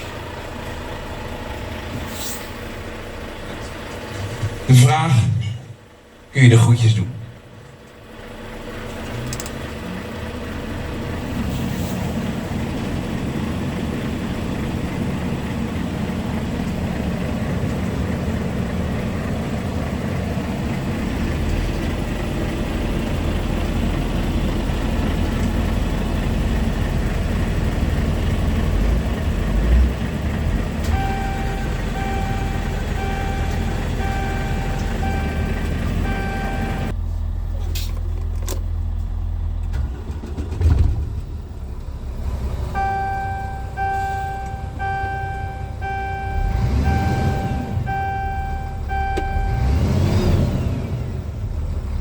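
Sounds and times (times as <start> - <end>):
truck engine and road noise: 0.0 - 52.0
repeating electronic beep: 42.8 - 49.6.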